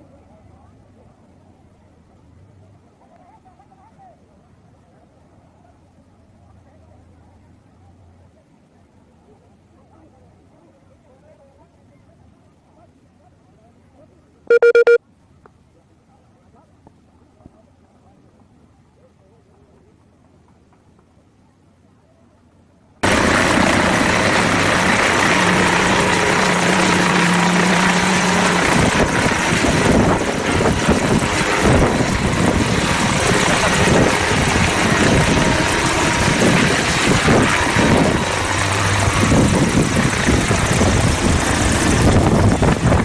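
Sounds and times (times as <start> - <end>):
aircraft noise rushing: 23.0 - 43.0.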